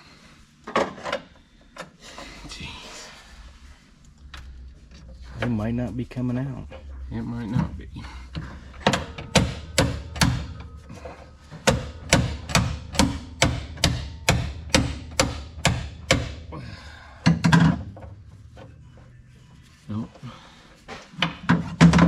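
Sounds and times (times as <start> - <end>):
hammer striking impact driver: 8.8 - 10.6, 11.6 - 16.4.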